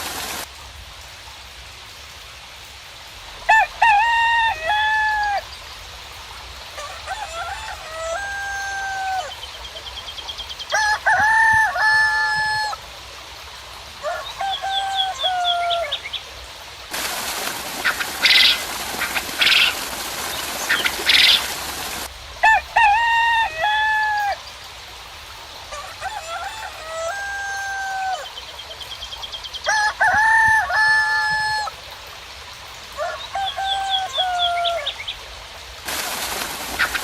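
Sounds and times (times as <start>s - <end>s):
rain hiss: 0.0s - 37.0s
rooster crowing: 3.5s - 5.5s, 6.8s - 9.4s, 10.7s - 12.8s, 14.0s - 16.0s, 22.4s - 24.4s, 25.7s - 28.4s, 29.6s - 31.8s, 33.0s - 35.0s
bird calls: 17.0s - 22.1s, 35.9s - 37.0s.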